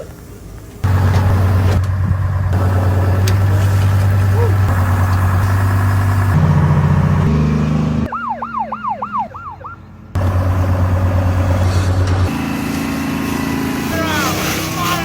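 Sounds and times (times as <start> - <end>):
low engine-like drone: 0.0 - 15.0
emergency siren yelping: 8.0 - 9.9.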